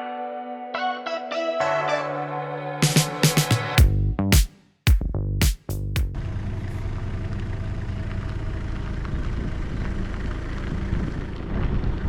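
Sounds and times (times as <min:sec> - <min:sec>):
vehicle engine running: 0:05.7 - 0:12.0.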